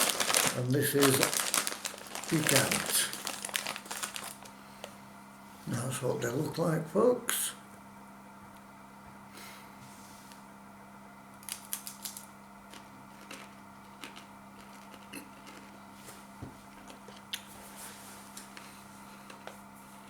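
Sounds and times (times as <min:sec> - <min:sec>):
chips crunching: 0:00.0 - 0:04.6, 0:11.4 - 0:15.8.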